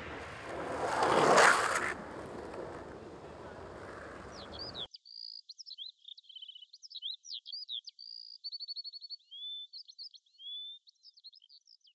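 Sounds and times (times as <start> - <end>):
songbird singing: 2.0 - 11.5.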